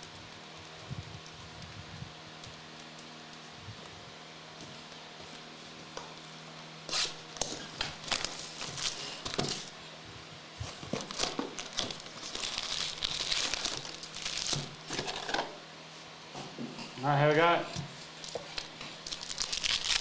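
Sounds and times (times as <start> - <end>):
plastic wrapping crinkling: 6.9 - 9.8, 10.6 - 15.6, 17.5 - 20.0.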